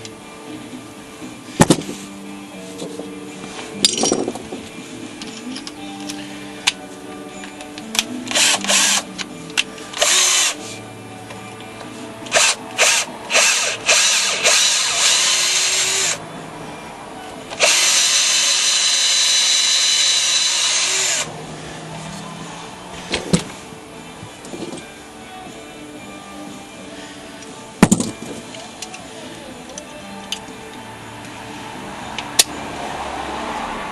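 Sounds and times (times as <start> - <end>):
electric drill running: 8.3 - 9.0, 10.0 - 10.6, 12.3 - 16.2, 17.6 - 21.3.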